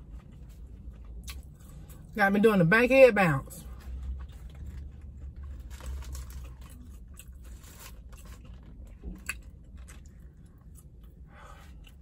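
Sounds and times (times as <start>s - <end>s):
low steady hum: 0.0s - 12.0s
crunchy chewing: 3.8s - 12.0s.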